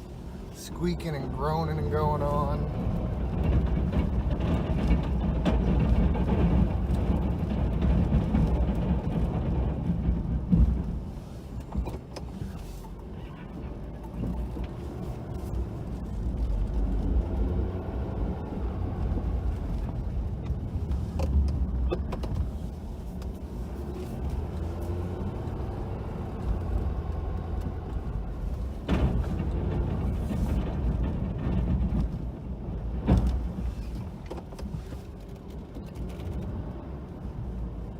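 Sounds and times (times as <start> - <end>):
snowplow squeaking and groaning: 0.0 - 37.9.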